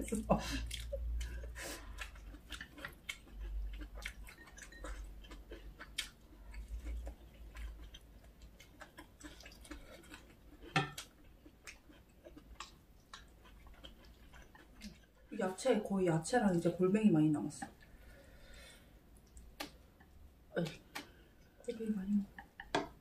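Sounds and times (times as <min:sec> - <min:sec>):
close-miked chewing: 0:00.0 - 0:15.6
mouth clicks and smacks: 0:19.2 - 0:21.2.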